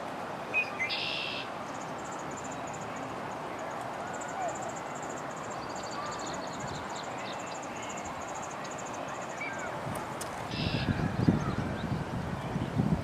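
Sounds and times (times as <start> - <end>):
steady background hiss: 0.0 - 13.0
short whistled bird calls: 0.5 - 1.5, 10.5 - 11.6
bird chirping trill: 10.5 - 12.0.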